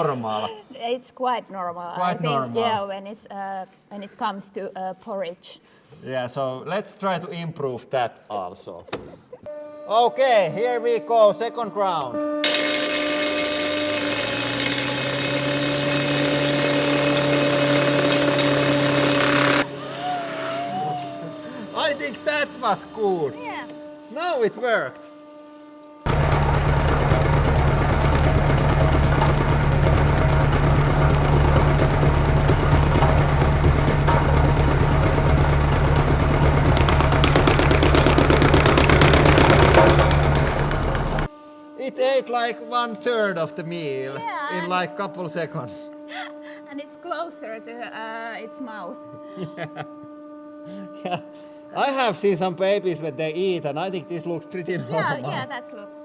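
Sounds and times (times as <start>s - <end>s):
angle grinder running: 0.0s - 0.5s, 12.2s - 41.3s, 42.0s - 46.2s
rapid clatter: 26.2s - 40.4s.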